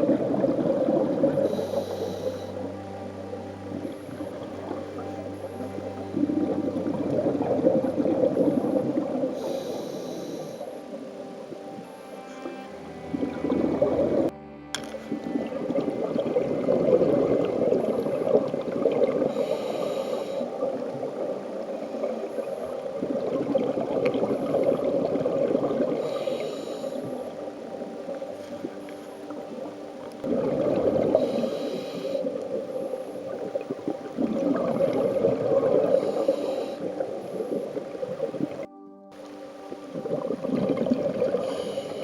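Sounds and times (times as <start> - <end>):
gurgling exhaled bubbles: 0.0 - 10.7, 11.8 - 14.3, 15.0 - 38.7, 39.8 - 42.0
regulator inhalation hisses: 1.4 - 2.7, 8.4 - 10.8, 19.3 - 20.5, 26.0 - 27.3, 31.1 - 32.4, 35.9 - 37.9, 41.4 - 42.0.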